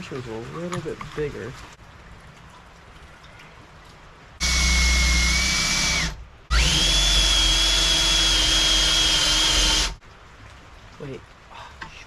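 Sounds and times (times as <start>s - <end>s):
electric drill whining in steel: 4.4s - 10.0s.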